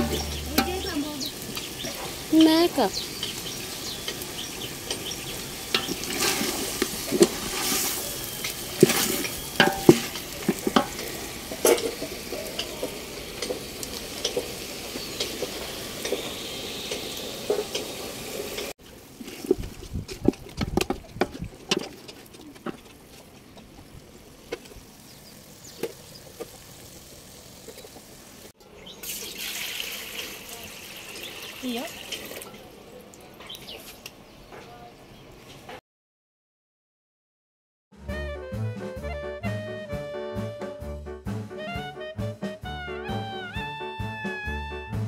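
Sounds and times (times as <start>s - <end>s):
chicken sizzling in a pot: 0.0s - 32.8s
wooden spoon scraping a pot: 5.8s - 14.4s.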